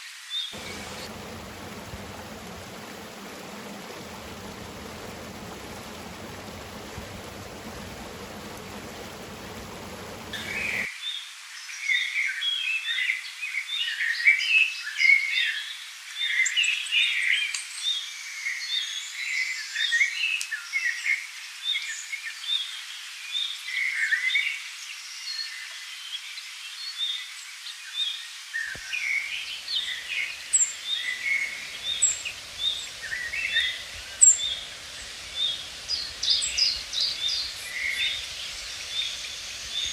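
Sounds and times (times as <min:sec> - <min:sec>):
flowing stream rushing: 0:00.6 - 0:10.9, 0:28.8 - 0:39.9
songbirds chirping: 0:00.6 - 0:10.9, 0:28.8 - 0:39.9.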